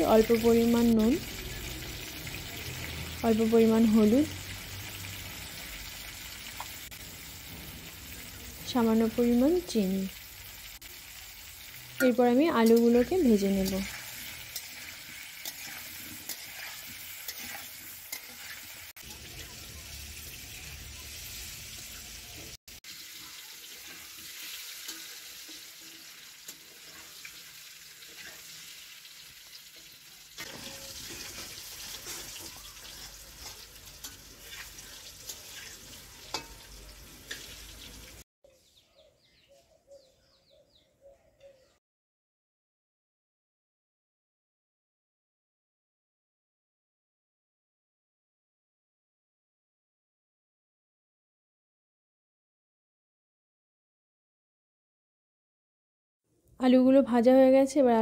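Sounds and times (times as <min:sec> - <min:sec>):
potatoes sizzling in oil: 0:00.0 - 0:38.2
metal spatula scraping and clinking: 0:11.6 - 0:19.6, 0:23.2 - 0:28.8, 0:29.7 - 0:38.1.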